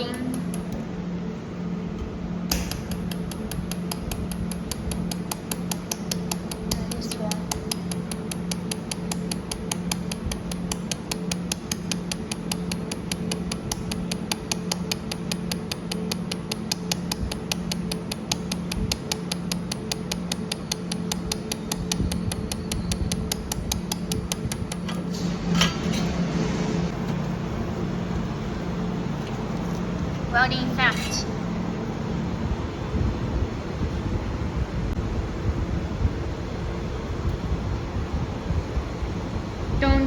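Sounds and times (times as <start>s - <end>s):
machine hum: 0.0s - 40.0s
laser welder ticks: 2.5s - 25.1s.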